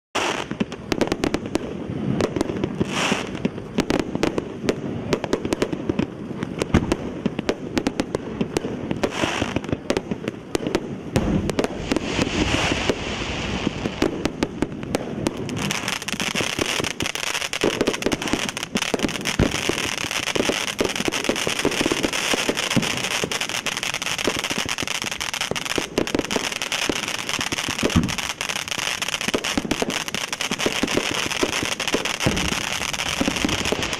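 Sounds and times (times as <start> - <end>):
firework fountain crackling: 0.2 - 33.9
loud hiss of spraying sparks: 9.0 - 9.7, 11.2 - 14.4, 15.4 - 33.9.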